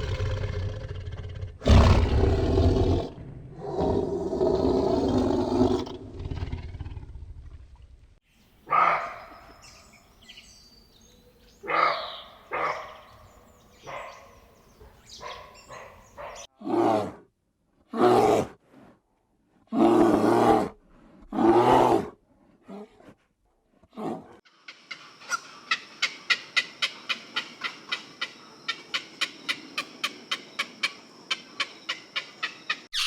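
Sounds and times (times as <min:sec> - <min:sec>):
animal growling roars: 0:00.0 - 0:07.8.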